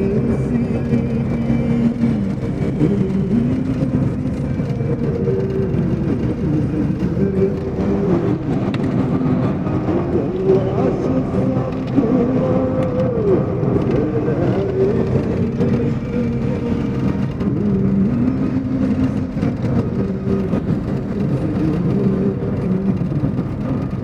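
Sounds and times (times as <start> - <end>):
motor vehicle drone: 0.0 - 24.0.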